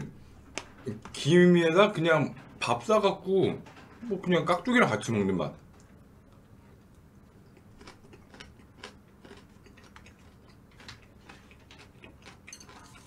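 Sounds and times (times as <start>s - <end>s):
faint chewing: 5.8s - 13.0s.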